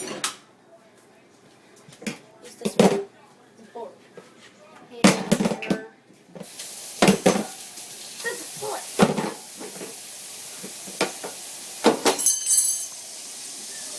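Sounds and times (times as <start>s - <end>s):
dishes and utensils clattering: 0.0s - 0.5s, 9.0s - 10.0s, 10.6s - 13.2s
steady hiss: 6.5s - 13.9s.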